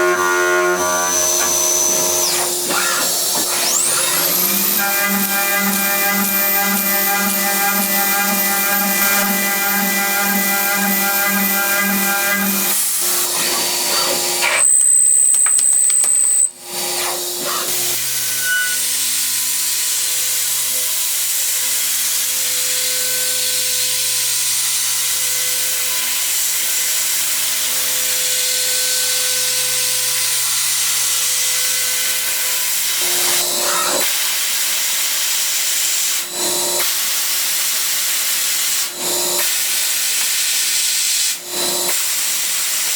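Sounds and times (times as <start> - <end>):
machine tools cutting metal: 0.0 - 14.8.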